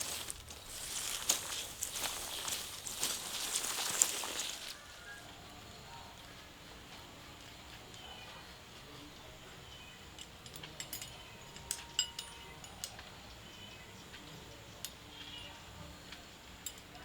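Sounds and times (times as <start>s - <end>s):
small hard objects clicking: 0.0s - 4.8s.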